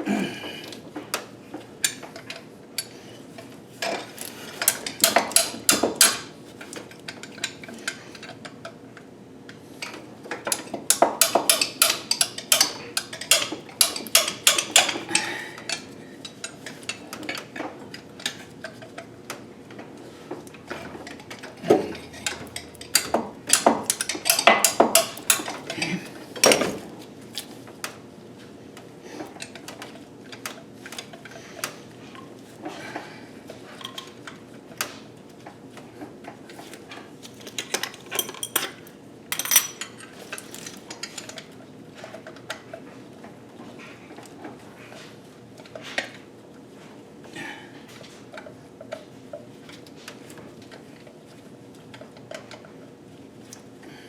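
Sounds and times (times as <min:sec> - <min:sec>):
metal tools clinking: 0:21.0 - 0:26.7, 0:37.4 - 0:41.4.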